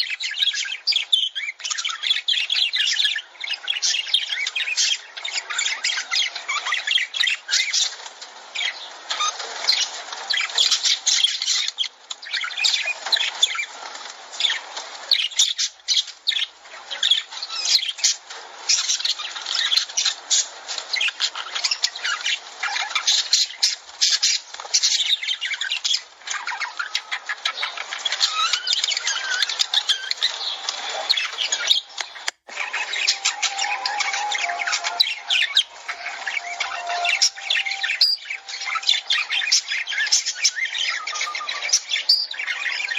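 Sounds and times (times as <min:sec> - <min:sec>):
lovebirds chirping and squawking: 0:00.0 - 0:42.9.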